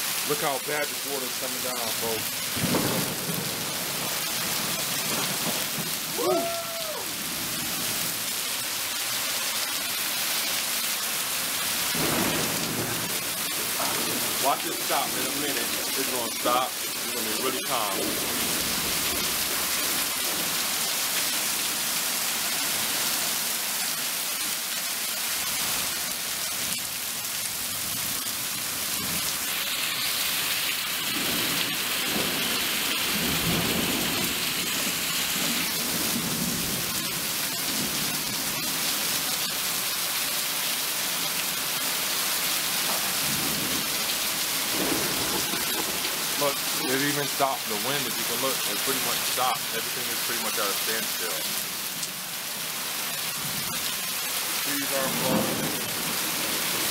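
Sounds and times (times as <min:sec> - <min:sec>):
heavy rain pouring: 0:00.0 - 0:56.9
thunder rumble: 0:02.5 - 0:06.3, 0:11.9 - 0:20.6, 0:31.1 - 0:38.6, 0:44.6 - 0:47.4, 0:55.0 - 0:56.9.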